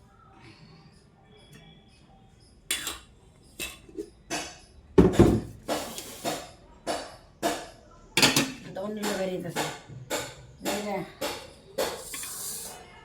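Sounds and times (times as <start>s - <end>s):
plates and cutlery clattering: 2.7s - 7.6s, 8.2s - 12.6s.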